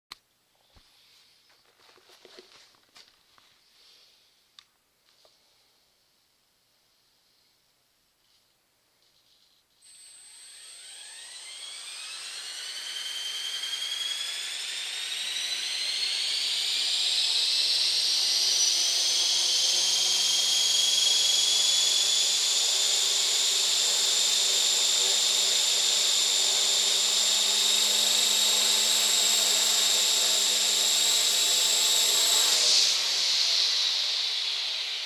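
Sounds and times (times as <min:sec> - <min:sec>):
rc motor high-pitched whine: 0:09.8 - 0:35.0.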